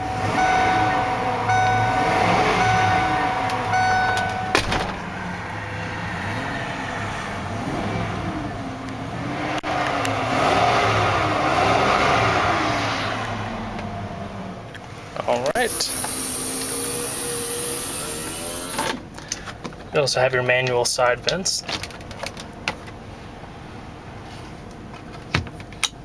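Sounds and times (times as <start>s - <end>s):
warning chime: 0.0s - 5.3s
car engine revving: 0.0s - 18.8s.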